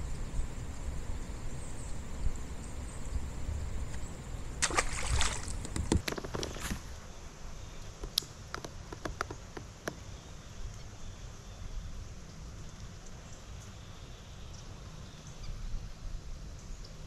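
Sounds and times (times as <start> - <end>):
wind rumble on microphone: 0.0 - 7.0
water drips: 3.9 - 6.0
water splashing against kayak: 3.9 - 6.8.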